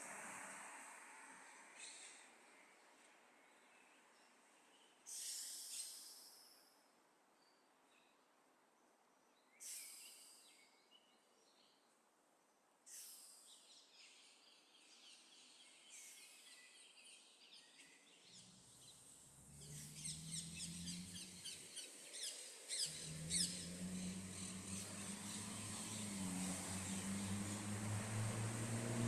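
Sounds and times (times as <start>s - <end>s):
birds chirping and trilling: 12.9s - 28.5s.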